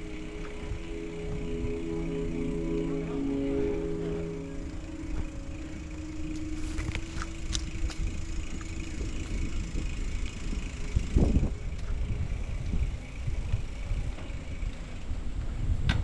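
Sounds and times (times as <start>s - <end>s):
bicycle clicks and rattles: 0.0s - 2.1s, 4.6s - 16.0s
bicycle tyres rumbling: 0.0s - 16.0s
bicycle thump: 15.8s - 16.0s.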